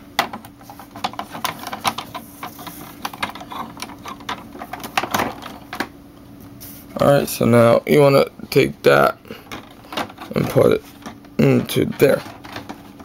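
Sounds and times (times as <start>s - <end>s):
plastic parts clicking and knocking: 0.2s - 5.9s, 9.4s - 13.0s.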